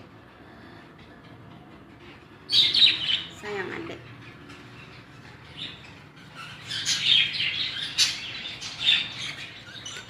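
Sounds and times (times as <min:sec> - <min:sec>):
budgerigars chirping and chattering: 0:02.0 - 0:10.0.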